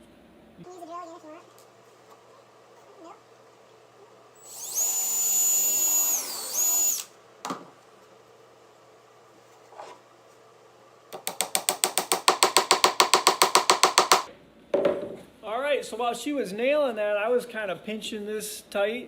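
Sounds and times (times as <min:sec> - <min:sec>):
power drill whining: 0:04.4 - 0:07.1.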